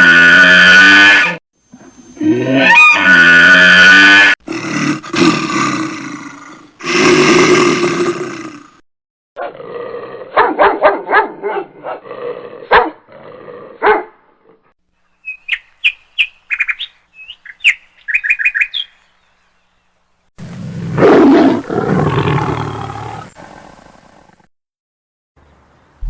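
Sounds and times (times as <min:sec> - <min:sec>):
dog barking: 0:10.3 - 0:12.0, 0:12.7 - 0:13.0, 0:13.8 - 0:14.2
small bird chirping: 0:15.0 - 0:19.9.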